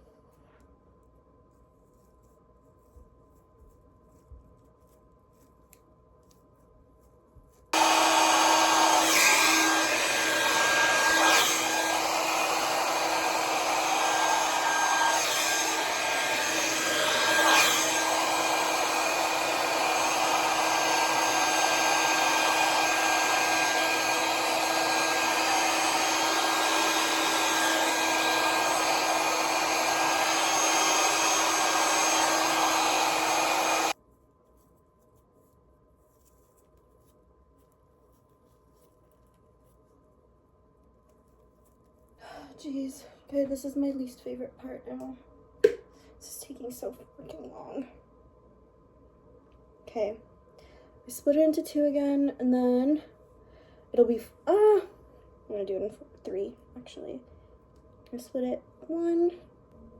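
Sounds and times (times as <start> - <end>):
hair dryer blowing: 7.8 - 34.0.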